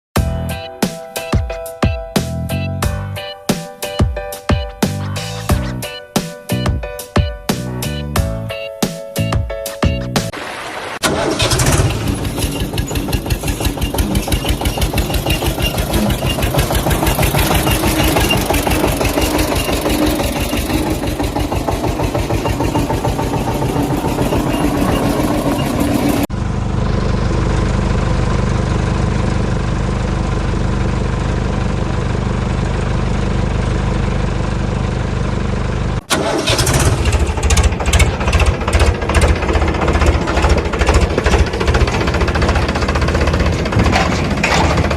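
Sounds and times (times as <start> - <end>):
engine chugging: 11.0 - 44.9.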